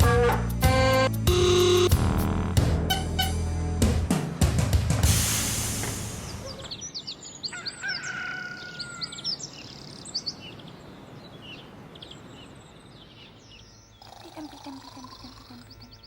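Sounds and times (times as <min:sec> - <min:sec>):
cymbal crash ringing: 0:05.0 - 0:06.4
birds chirping: 0:06.0 - 0:16.0.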